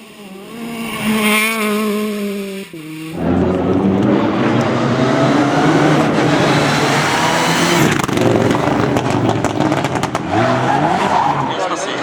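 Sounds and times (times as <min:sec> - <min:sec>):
rally car engine revving: 0:00.0 - 0:12.0
exhaust crackles and pops: 0:03.1 - 0:11.6.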